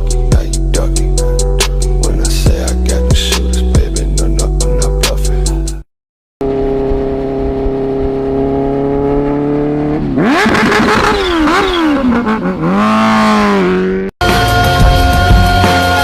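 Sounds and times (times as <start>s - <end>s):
motorcycle engine revving: 6.4s - 14.2s.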